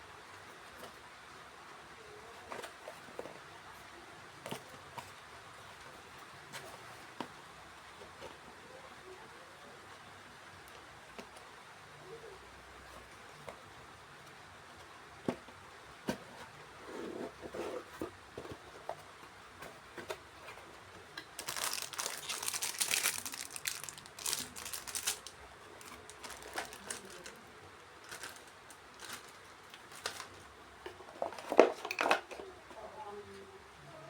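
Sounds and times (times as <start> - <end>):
packaging crinkling and rustling: 19.6 - 32.3.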